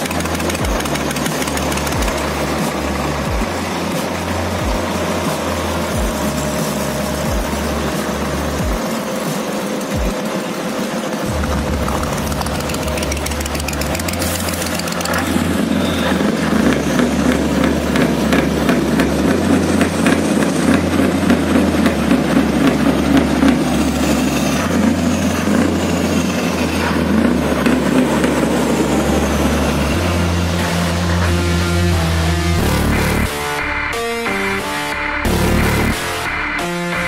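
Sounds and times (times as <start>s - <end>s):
diesel truck engine rumbling: 0.0s - 8.9s, 11.2s - 37.0s.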